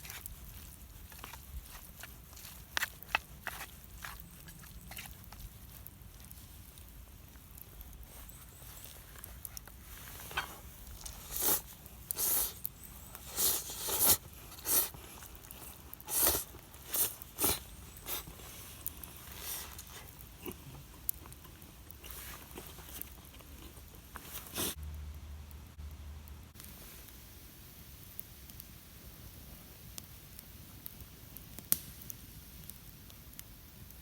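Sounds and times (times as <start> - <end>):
chewing and slurping: 0.0 - 24.8.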